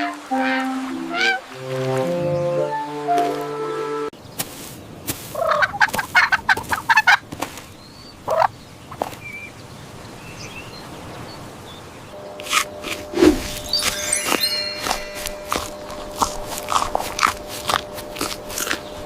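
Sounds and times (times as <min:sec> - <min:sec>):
poultry calling: 0:05.4 - 0:07.2
steady pitched tone: 0:12.2 - 0:17.4.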